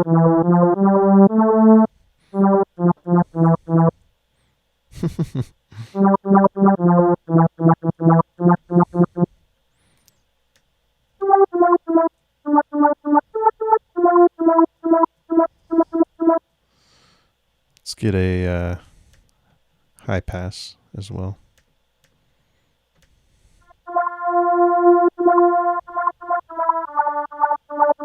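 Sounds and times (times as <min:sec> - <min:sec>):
synthesizer square-wave lead: 0:00.0 - 0:03.9, 0:06.0 - 0:09.3, 0:11.2 - 0:16.4, 0:23.8 - 0:28.0.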